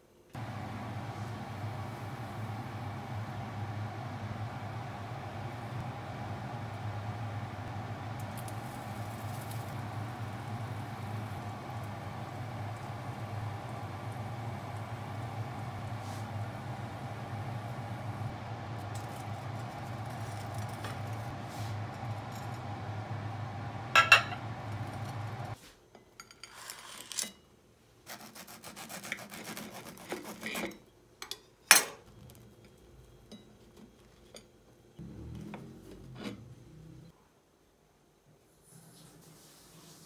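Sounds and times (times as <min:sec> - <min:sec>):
steady hum: 0:00.4 - 0:25.6.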